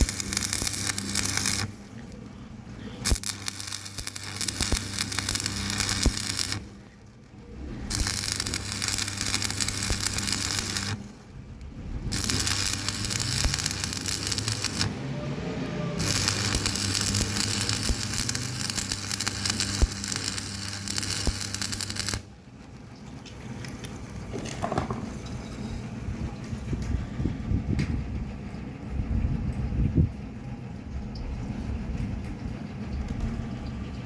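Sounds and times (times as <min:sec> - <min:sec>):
welding arc crackling: 0:00.0 - 0:22.8
low electrical hum: 0:00.0 - 0:34.0.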